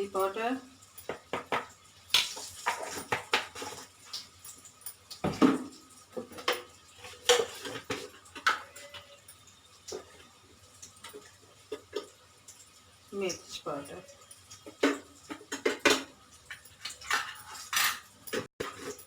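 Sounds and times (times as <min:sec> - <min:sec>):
metal spoon clinking on steel containers: 0:14.2 - 0:19.0.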